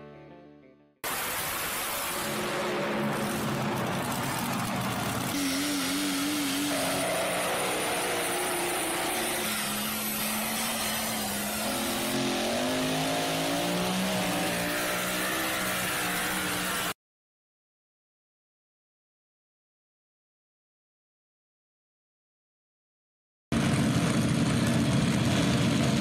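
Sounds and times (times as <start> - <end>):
truck engine at high revs: 1.0 - 17.0.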